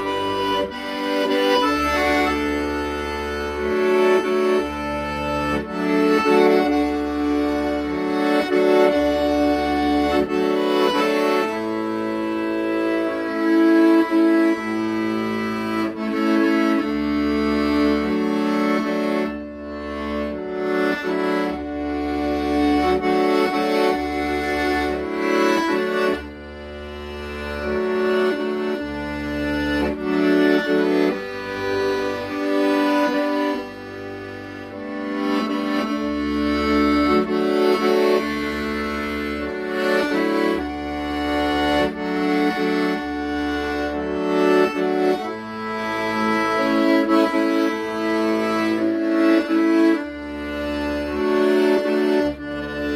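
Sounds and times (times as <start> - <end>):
accordion melody: 0.0 - 52.9
low bass notes: 0.0 - 52.9.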